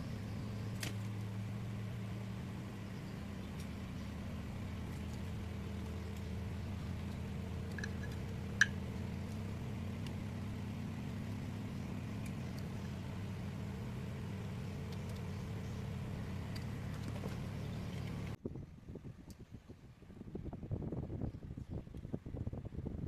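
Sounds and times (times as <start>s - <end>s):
small motor humming: 0.0s - 18.4s.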